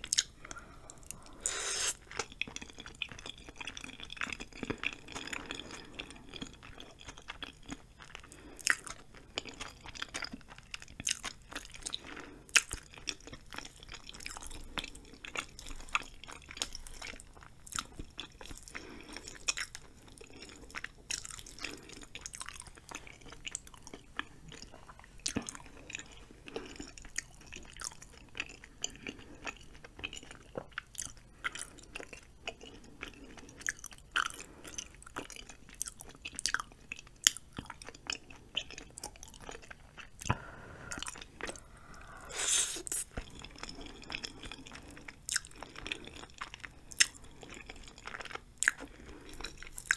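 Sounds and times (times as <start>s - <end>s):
close chewing of noodles: 0.0s - 49.9s
wet mouth clicks and smacks: 42.5s - 43.5s.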